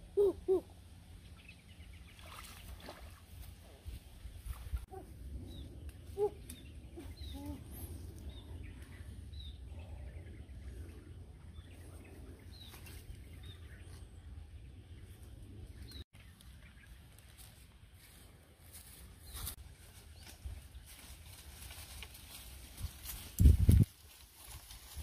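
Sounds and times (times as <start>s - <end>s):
steady low rumble: 3.5s - 21.7s
birds chirping: 4.2s - 18.2s
lower bird calls: 4.9s - 14.2s.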